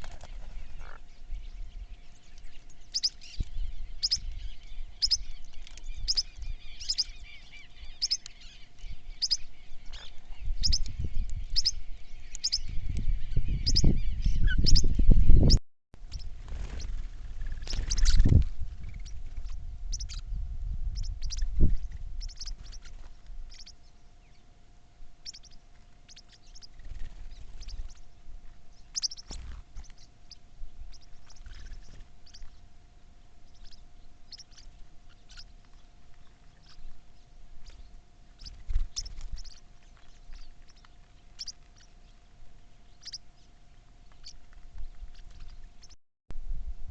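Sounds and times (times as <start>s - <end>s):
low rumbling noise: 0.0s - 25.6s, 46.4s - 46.9s
small birds chirping: 0.0s - 46.0s.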